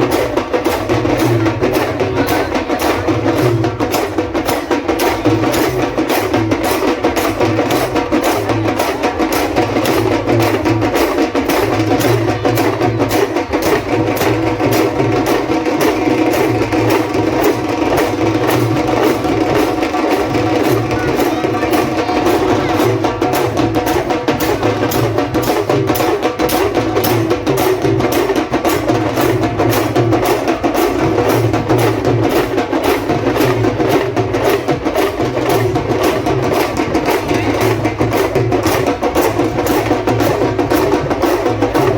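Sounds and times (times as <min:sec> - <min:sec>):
drums: 0:00.0 - 0:41.9.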